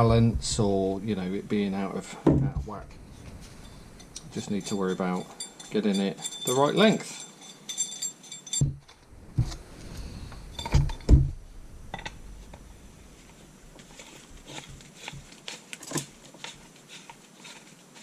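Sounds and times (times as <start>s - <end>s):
dull knocks and clunks: 2.2s - 2.9s, 10.6s - 11.4s.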